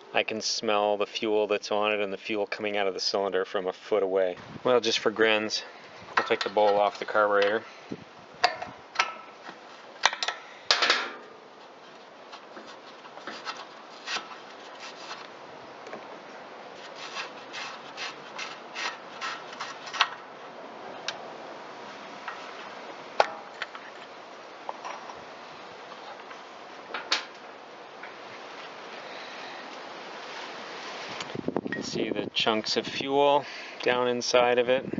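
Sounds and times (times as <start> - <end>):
clicks and knocks of hand tools: 8.4 - 11.2.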